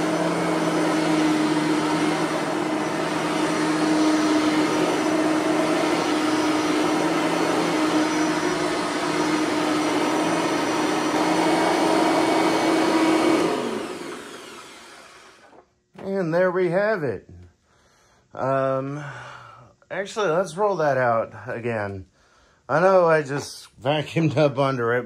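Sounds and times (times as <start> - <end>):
vacuum cleaner running on rug: 0.0 - 15.6.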